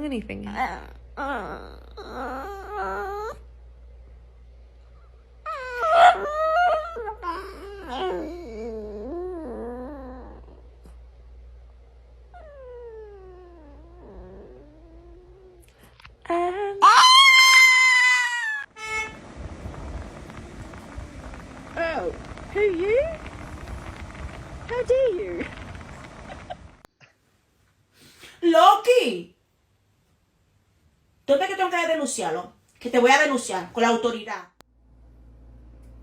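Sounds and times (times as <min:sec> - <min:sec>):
dog howling: 0:05.5 - 0:10.6, 0:16.8 - 0:19.2.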